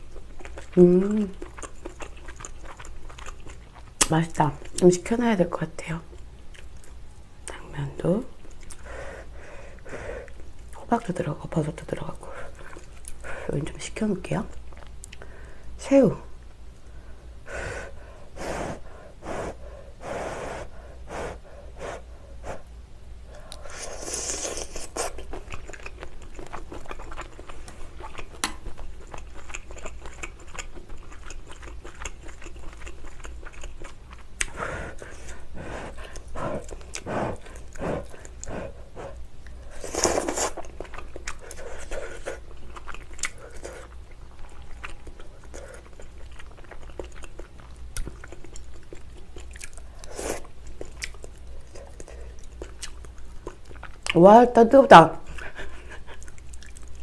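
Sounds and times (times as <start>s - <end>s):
woman biting and chewing food: 0.0s - 4.8s, 23.4s - 54.2s
wet mouth clicks: 28.0s - 28.7s.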